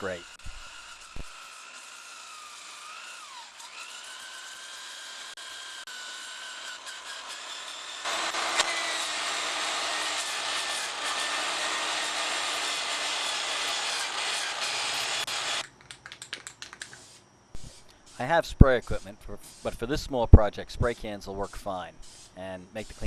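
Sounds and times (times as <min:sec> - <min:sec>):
disc grinding metal: 0:00.0 - 0:15.6
electric drill whining: 0:00.0 - 0:15.6.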